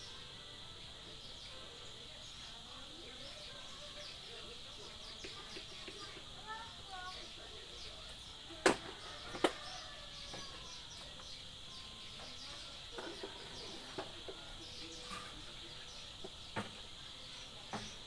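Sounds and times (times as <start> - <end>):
birds chirping: 0.0 - 18.0
fan parts clicking and knocking: 8.0 - 11.3, 12.2 - 18.0.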